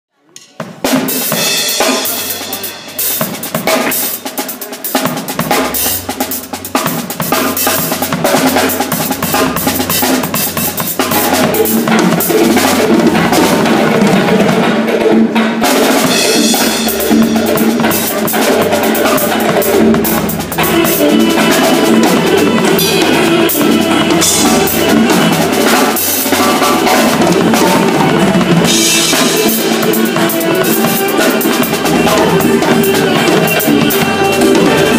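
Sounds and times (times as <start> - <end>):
drum kit playing: 0.4 - 34.9
accompanying music with bass line: 16.0 - 34.9.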